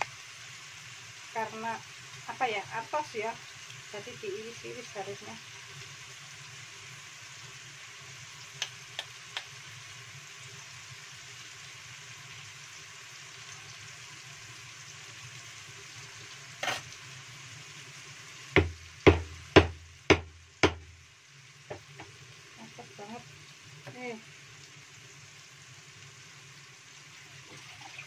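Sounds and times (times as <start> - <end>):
spice paste sizzling in a wok: 0.0 - 28.0
sharp knocks: 18.6 - 20.8.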